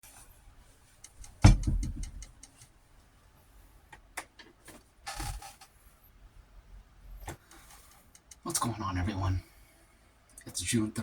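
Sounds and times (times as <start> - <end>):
rattling clicks: 1.0 - 2.7
loud knock: 1.4 - 2.2.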